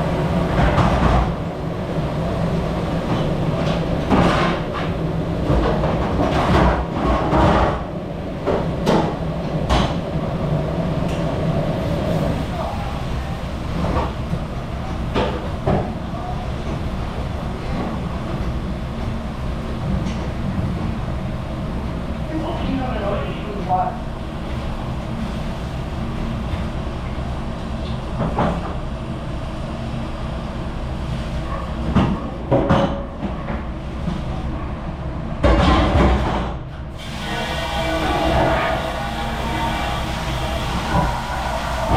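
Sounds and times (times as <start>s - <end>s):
low machine rumble: 0.0s - 22.4s, 36.9s - 41.9s.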